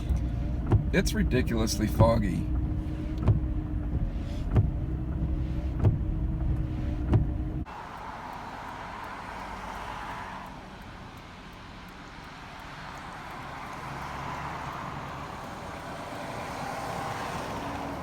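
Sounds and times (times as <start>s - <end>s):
sharp ticking: 0.0s - 16.2s
road and engine hum in car: 0.0s - 18.0s.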